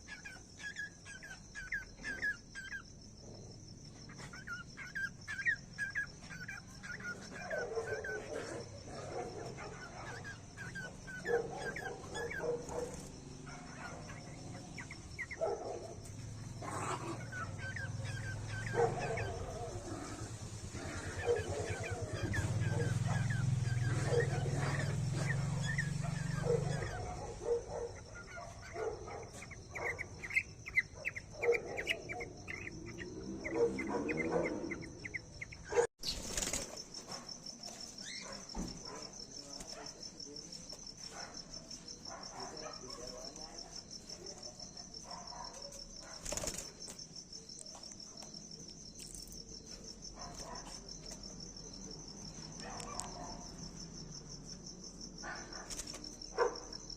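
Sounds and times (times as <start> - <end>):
insects trilling: 0.0 - 56.9
short chirping calls: 13.8 - 36.7.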